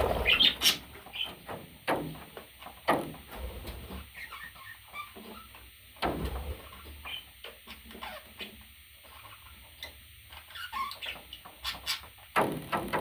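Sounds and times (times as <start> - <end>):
parrot chirping: 0.0 - 1.3, 4.1 - 5.5, 6.7 - 12.1.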